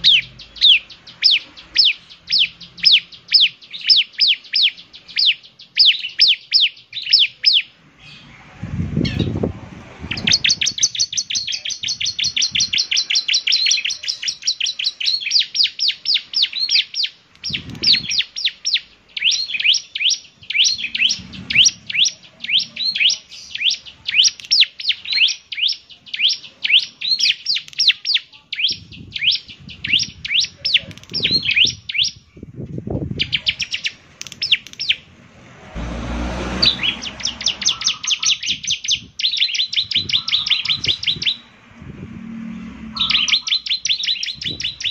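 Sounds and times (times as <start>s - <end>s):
bird singing high chirps: 0.0s - 8.4s, 10.0s - 35.1s, 36.5s - 41.6s, 42.9s - 44.9s
low rumble: 20.4s - 23.0s, 35.0s - 38.2s, 40.9s - 43.4s.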